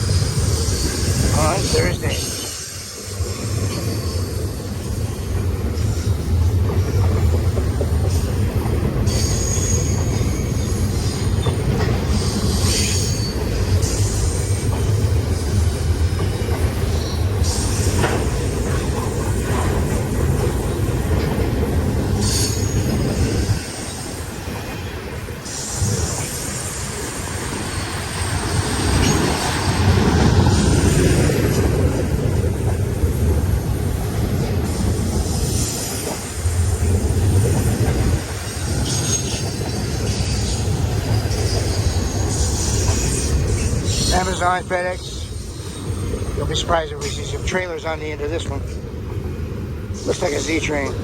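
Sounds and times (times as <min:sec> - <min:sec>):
freight train wheels rumbling: 0:00.0 - 0:51.0
high-pitched wheel squeal: 0:09.1 - 0:11.6.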